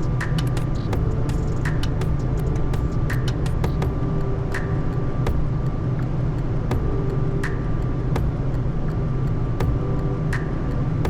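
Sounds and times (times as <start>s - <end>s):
airflow and engine rumble: 0.0s - 11.0s.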